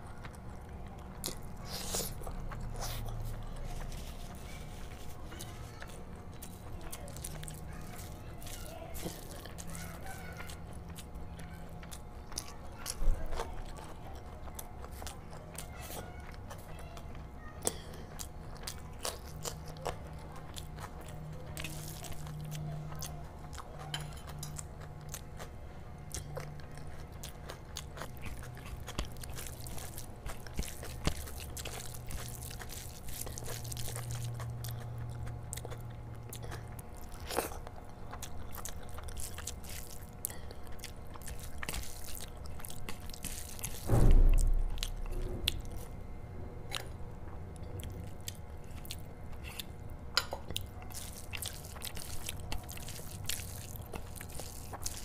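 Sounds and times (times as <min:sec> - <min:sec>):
chewing food: 0:00.0 - 0:55.0
dull thump: 0:43.9 - 0:45.5.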